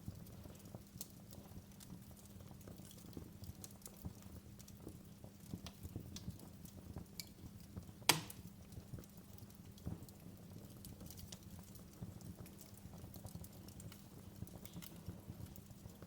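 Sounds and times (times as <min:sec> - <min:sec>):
wood fire crackling: 0:00.0 - 0:16.0
loud fire pop: 0:08.1 - 0:08.4.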